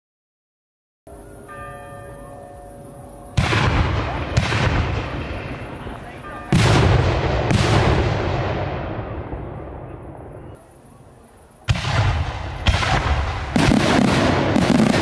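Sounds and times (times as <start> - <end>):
distant church bells ringing: 1.1 - 7.5
firework launch bangs: 3.4 - 5.9, 6.5 - 9.5, 11.6 - 15.0.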